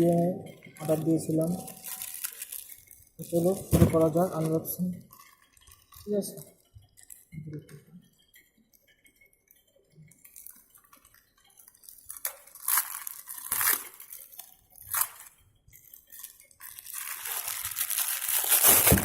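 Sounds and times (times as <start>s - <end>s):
packaging clicks and rustles: 0.6s - 7.2s, 10.2s - 19.0s
wrapping tearing: 0.8s - 5.8s, 11.8s - 19.0s.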